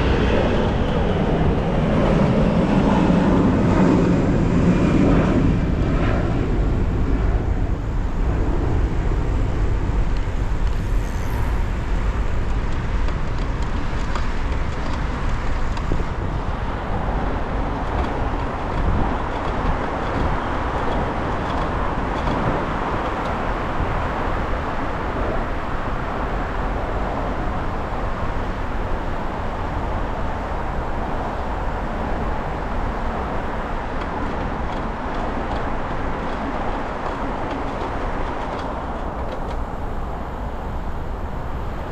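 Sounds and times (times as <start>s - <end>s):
road traffic low rumble: 0.0s - 41.9s.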